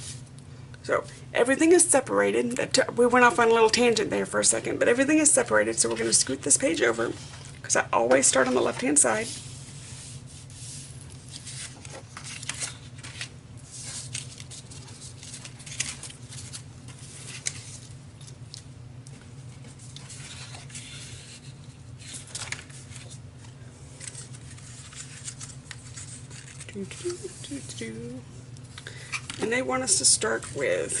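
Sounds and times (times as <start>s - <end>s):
steady low hum: 0.0s - 31.0s
paper rustling: 5.2s - 7.5s, 8.1s - 27.9s.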